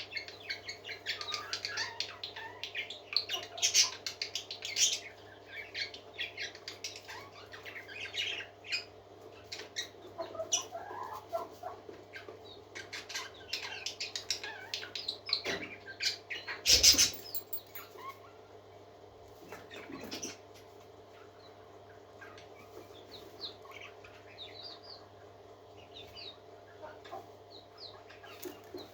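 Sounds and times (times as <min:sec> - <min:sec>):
parakeets chirping and twittering: 0:00.0 - 0:11.4, 0:12.1 - 0:18.4, 0:19.5 - 0:20.5, 0:22.0 - 0:25.1.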